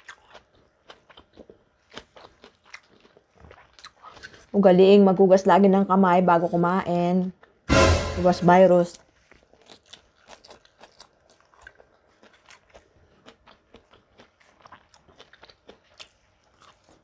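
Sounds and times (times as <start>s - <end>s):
person chewing crunchy food: 0.0s - 4.6s, 9.1s - 17.0s.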